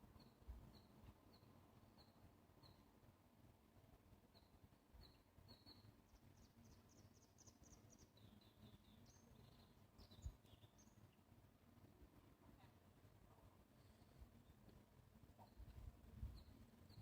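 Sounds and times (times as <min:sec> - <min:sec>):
bird chirping: 0:00.2 - 0:02.9, 0:04.3 - 0:11.3, 0:15.4 - 0:17.0.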